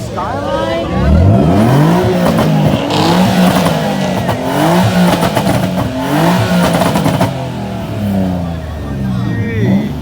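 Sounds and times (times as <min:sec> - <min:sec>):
car engine revving: 0:00.1 - 0:10.0.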